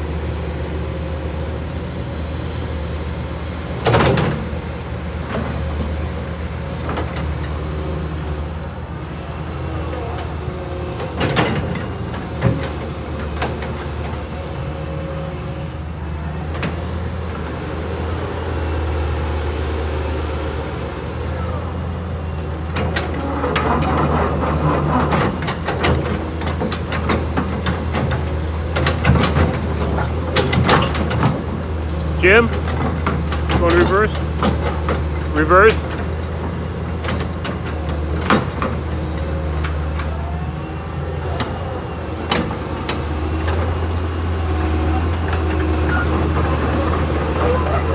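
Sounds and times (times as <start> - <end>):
excavator diesel engine running: 0.0 - 47.9.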